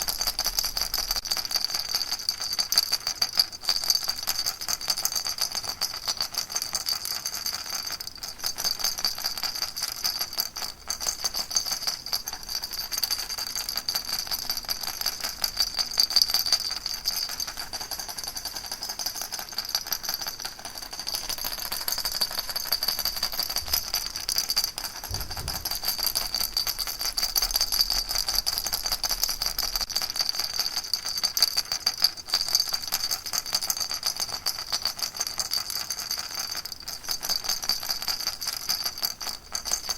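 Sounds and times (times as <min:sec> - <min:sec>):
baby rattle shaking: 0:00.0 - 0:39.9.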